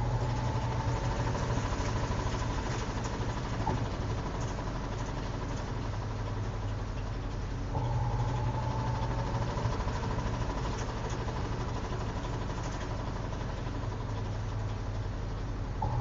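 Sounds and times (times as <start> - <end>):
thin whine: 0.0 - 2.4, 7.7 - 10.3, 15.8 - 16.0
washing machine motor humming: 0.0 - 4.8, 7.7 - 13.5, 15.8 - 16.0.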